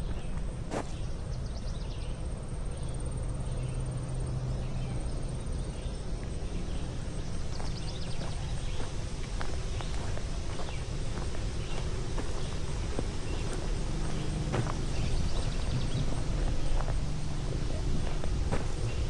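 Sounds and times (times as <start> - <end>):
footsteps on a trail: 0.0 - 1.1, 5.8 - 19.0.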